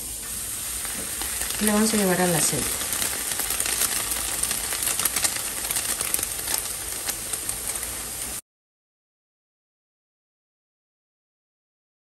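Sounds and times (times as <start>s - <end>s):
hot oil sizzling and popping: 0.0s - 8.4s.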